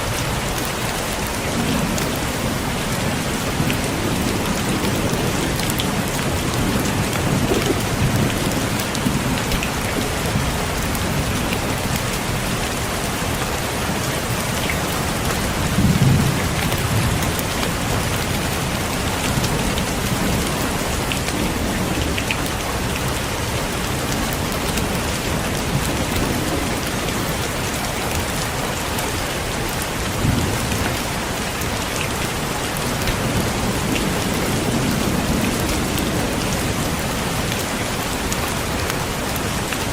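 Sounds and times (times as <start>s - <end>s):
heavy rain on a window: 0.0s - 39.9s
thunder rolling: 1.6s - 11.4s.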